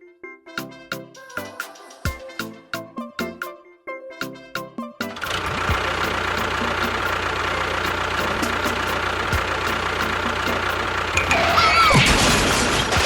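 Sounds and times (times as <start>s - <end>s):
engine running: 5.2s - 13.0s
high squeal sliding down: 11.2s - 12.7s.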